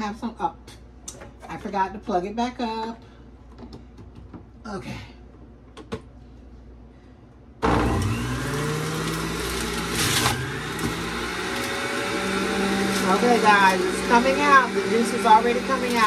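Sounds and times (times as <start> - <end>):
juicer motor whine: 7.6 - 16.0.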